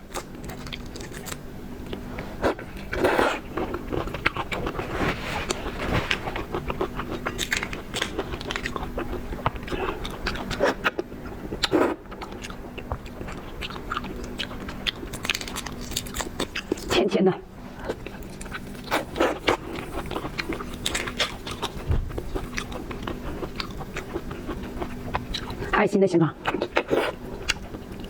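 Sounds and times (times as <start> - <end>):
wet chewing of shrimp: 0.0 - 17.0, 17.6 - 25.8, 26.4 - 28.0
crunchy bites: 0.1 - 1.4.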